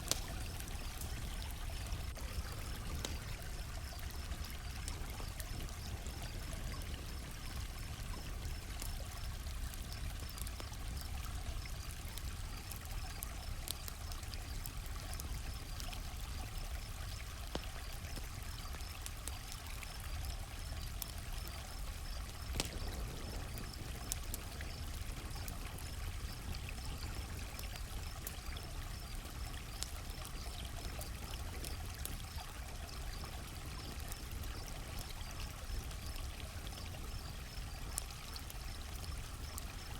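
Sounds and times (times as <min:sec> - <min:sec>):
crickets chirping: 0:00.0 - 0:19.1, 0:19.9 - 0:39.9
campfire crackling: 0:00.0 - 0:39.9.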